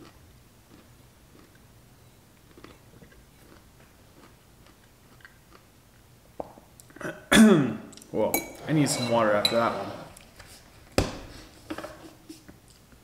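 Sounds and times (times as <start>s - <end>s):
person chewing pickles: 0.0s - 7.0s.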